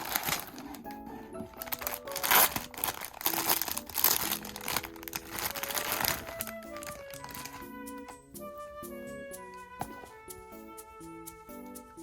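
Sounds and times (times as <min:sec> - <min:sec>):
packaging crinkling and tearing: 0:00.0 - 0:08.0.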